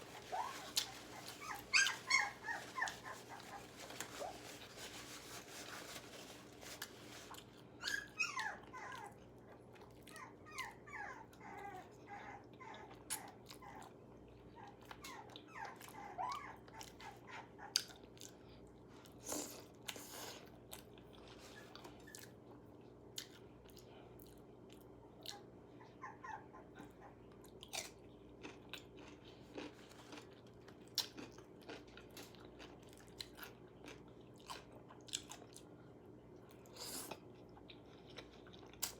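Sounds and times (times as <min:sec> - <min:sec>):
crunching and chewing: 0:00.0 - 0:25.6, 0:27.0 - 0:38.9
dog whining: 0:00.1 - 0:04.4, 0:07.7 - 0:09.4, 0:10.0 - 0:17.8, 0:25.3 - 0:27.3.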